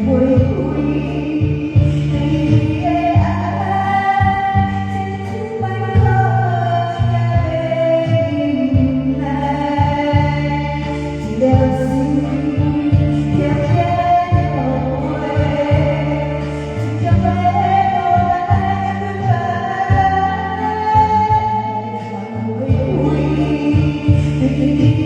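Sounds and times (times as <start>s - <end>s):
karaoke backing track: 0.0s - 25.0s
person singing: 0.0s - 25.0s.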